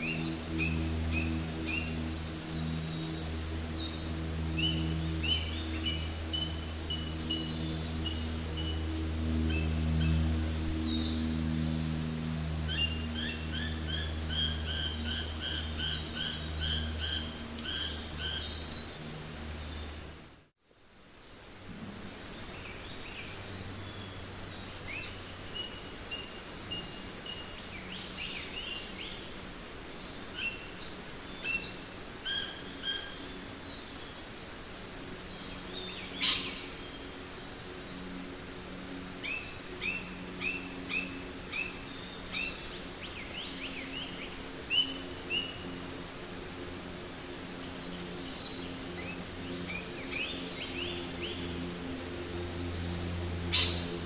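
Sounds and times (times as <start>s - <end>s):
birds chirping and calling: 0.0s - 8.8s, 9.4s - 18.9s, 36.1s - 37.0s, 52.8s - 54.0s
low steady hum: 0.0s - 54.0s
faint steady hiss: 17.0s - 54.0s.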